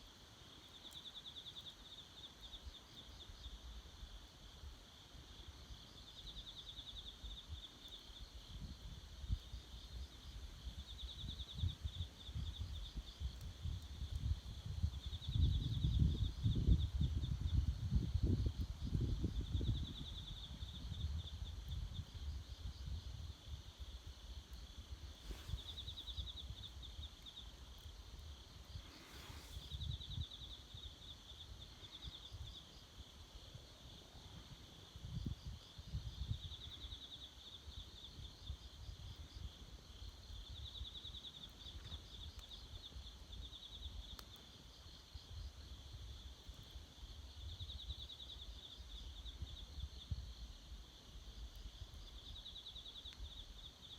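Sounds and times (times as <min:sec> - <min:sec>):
insect trilling: 0:24.5 - 0:33.5.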